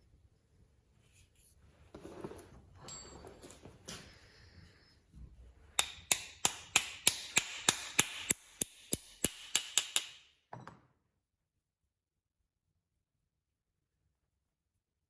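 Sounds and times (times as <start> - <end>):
sharp hammer-like taps: 5.8 - 10.3.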